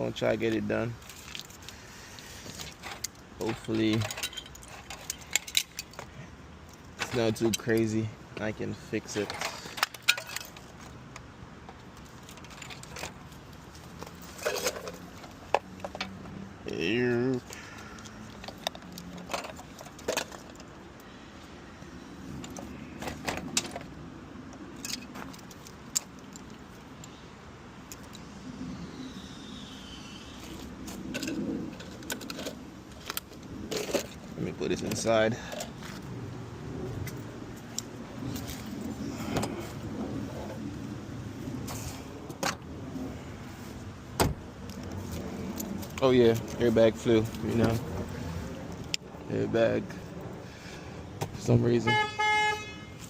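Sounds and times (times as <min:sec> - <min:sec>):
steady low rumble: 0:19.6 - 0:51.7.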